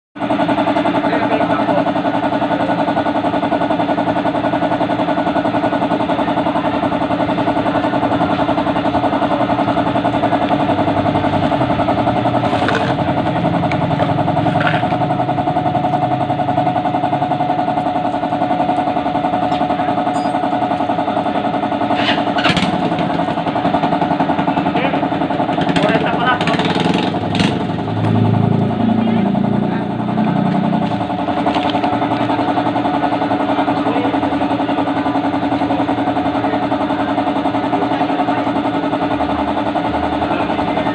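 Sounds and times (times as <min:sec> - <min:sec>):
engine idling: 0:00.2 - 0:40.9
tools clinking: 0:20.1 - 0:20.5.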